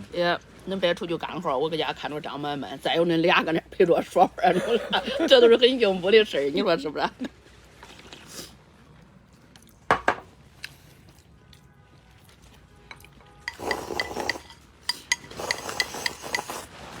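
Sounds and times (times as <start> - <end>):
utensils clinking against a bowl: 12.8 - 16.7.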